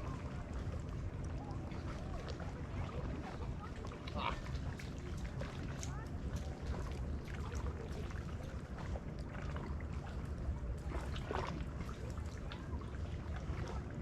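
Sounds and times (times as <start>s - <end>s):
waves lapping against kayak hull: 0.0s - 14.0s.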